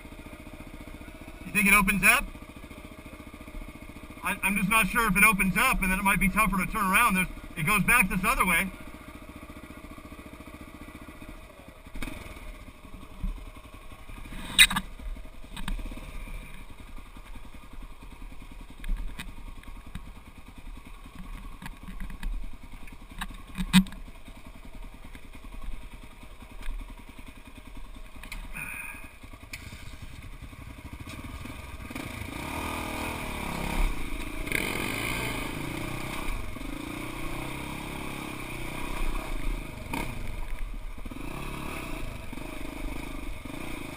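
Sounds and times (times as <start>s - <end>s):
off-road vehicle engine revving: 0.0s - 2.8s, 3.5s - 9.0s, 10.2s - 13.4s, 14.0s - 16.7s, 28.2s - 30.2s, 30.8s - 43.9s
sharp knocks and clatters: 23.1s - 24.1s.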